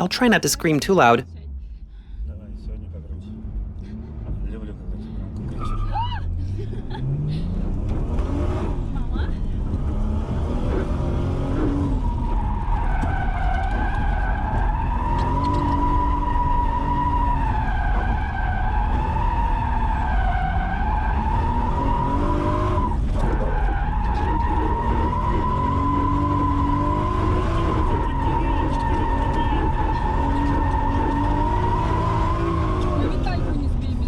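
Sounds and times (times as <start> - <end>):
car engine revving hard: 6.9 - 34.0.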